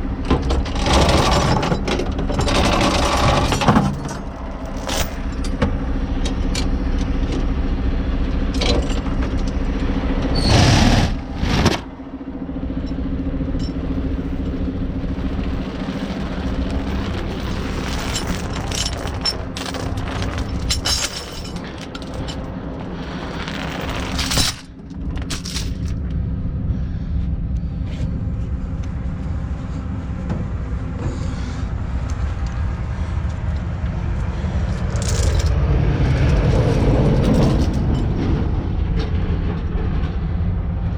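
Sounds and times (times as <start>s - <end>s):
diesel truck engine running: 0.0s - 40.9s
metal clanks: 12.8s - 26.0s.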